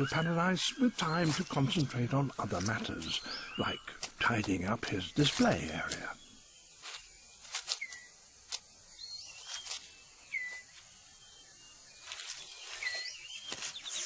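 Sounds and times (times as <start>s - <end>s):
clicks and rustles of leaf litter: 0.6s - 3.2s, 3.9s - 6.2s, 6.8s - 8.7s, 9.3s - 10.9s, 12.0s - 14.0s
short whistled bird calls: 7.7s - 8.2s, 9.0s - 14.0s.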